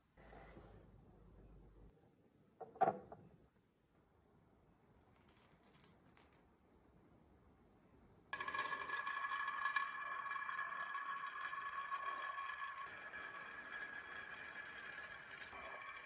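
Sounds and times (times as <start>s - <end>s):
marbles rolling on wood: 8.4s - 16.0s.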